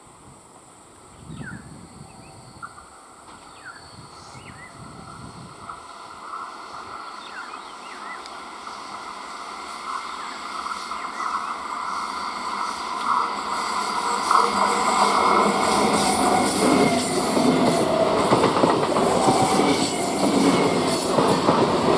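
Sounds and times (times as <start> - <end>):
electric train running: 4.8 - 21.9
birds chirping: 6.2 - 17.7.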